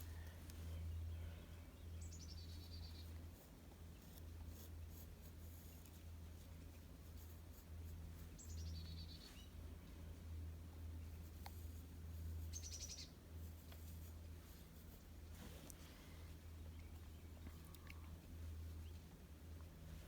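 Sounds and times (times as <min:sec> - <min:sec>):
steady low hum: 0:00.0 - 0:20.0
songbird calling: 0:00.6 - 0:03.1, 0:08.4 - 0:09.5, 0:12.5 - 0:13.1
pencil scratching on paper: 0:03.1 - 0:08.4.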